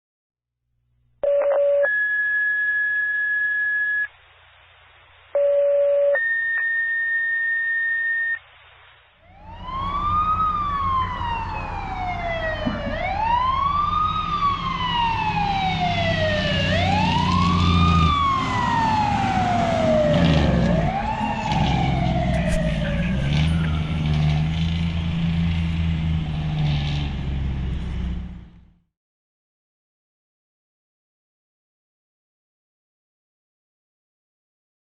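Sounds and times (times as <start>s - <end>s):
two-tone radio paging tones: 1.2s - 4.2s, 5.3s - 8.5s
fire engine siren wailing: 9.3s - 28.6s
truck engine rumble: 9.3s - 28.8s.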